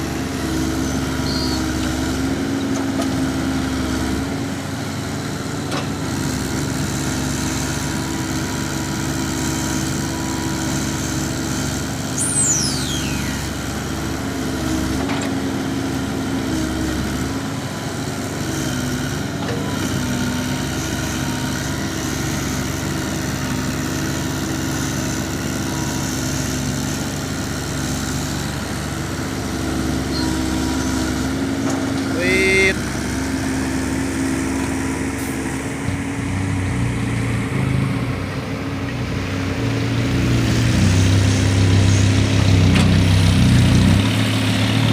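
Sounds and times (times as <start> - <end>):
truck diesel engine running: 0.0 - 44.9
high whistle falling in pitch: 12.2 - 13.5.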